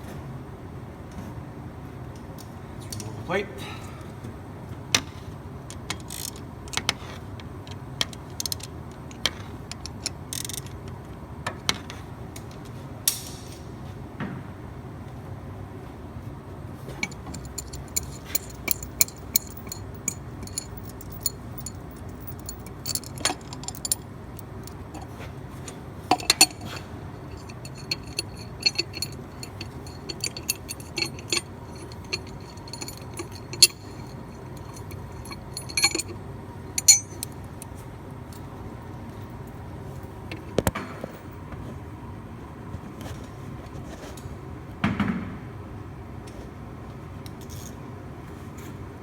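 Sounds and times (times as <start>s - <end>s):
steel tools clinking: 17.0s - 37.8s
metal knocks: 26.1s - 36.1s.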